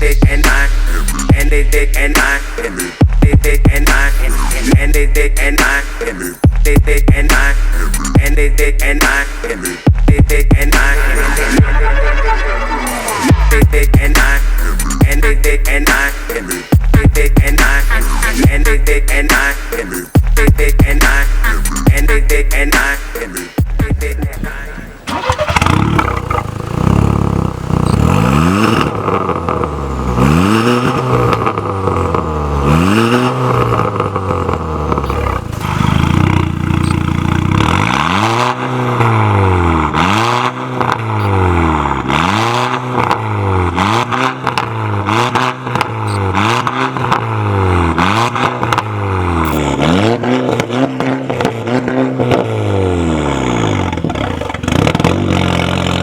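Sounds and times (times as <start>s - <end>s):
car engine free-revving: 0.0s - 56.0s
exhaust cracks: 13.2s - 56.0s.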